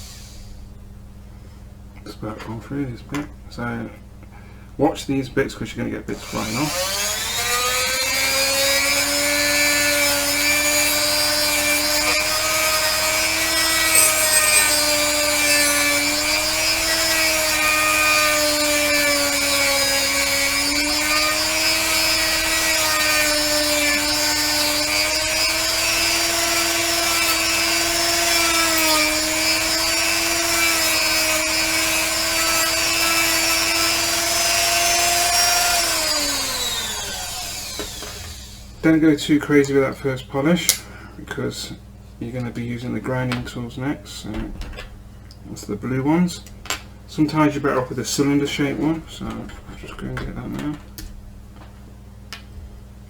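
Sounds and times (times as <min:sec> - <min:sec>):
rotary tool motor whine: 0:06.2 - 0:38.8.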